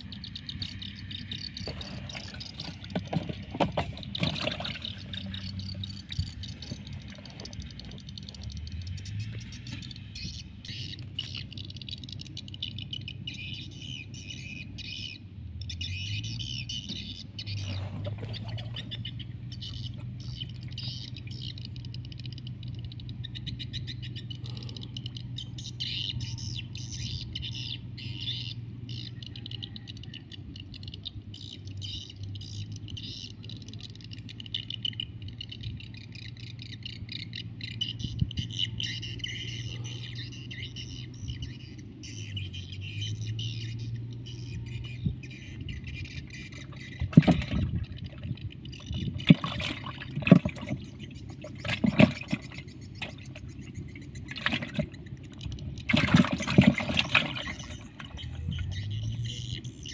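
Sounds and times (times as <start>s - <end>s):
small birds chirping: 0.0s - 59.9s
steady low hum: 30.4s - 59.9s.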